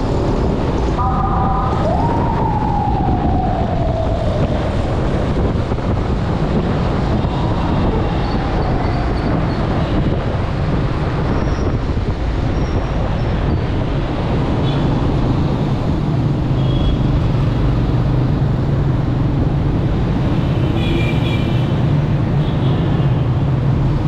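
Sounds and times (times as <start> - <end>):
wind buffeting microphone: 0.0 - 16.5
road traffic rumble: 0.0 - 24.0
tone gliding down in pitch: 1.0 - 4.1.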